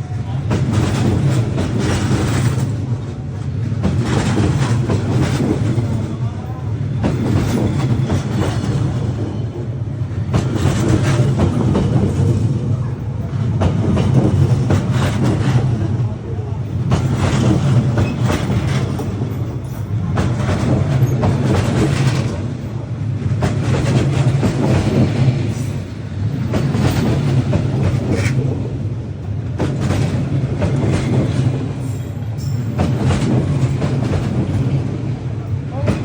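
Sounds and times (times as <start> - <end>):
train rumbling past: 0.0 - 36.0
wheels clacking over rail joints: 0.3 - 6.3, 13.3 - 16.1, 16.7 - 36.0.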